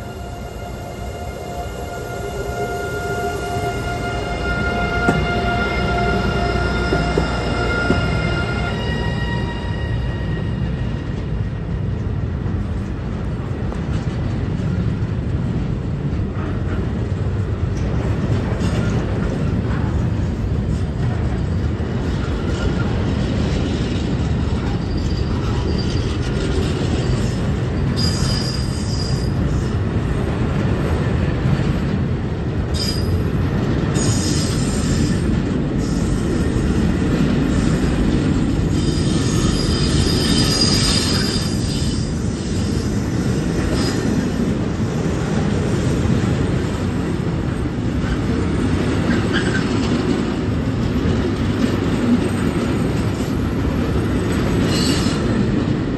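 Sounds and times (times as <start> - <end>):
train wheels squealing: 0.0 - 11.5, 20.6 - 29.8, 32.7 - 33.3, 33.9 - 36.8, 37.4 - 44.4, 49.1 - 50.0, 54.3 - 55.6
freight train rumbling: 0.0 - 55.9.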